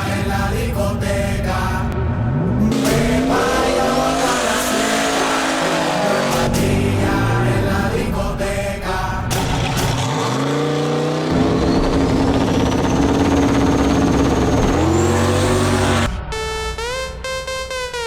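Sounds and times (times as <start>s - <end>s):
race car engine accelerating: 1.6s - 16.1s
turbo whine: 9.3s - 16.1s
electronic music: 11.3s - 18.0s.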